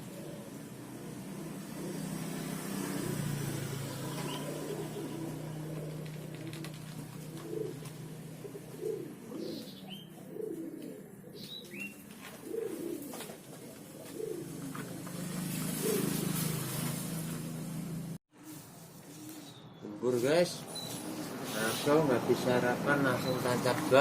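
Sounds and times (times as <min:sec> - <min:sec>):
dove cooing: 0:00.0 - 0:17.5, 0:20.8 - 0:24.0
small bird chirping: 0:09.4 - 0:10.2, 0:11.4 - 0:12.0, 0:20.6 - 0:21.2.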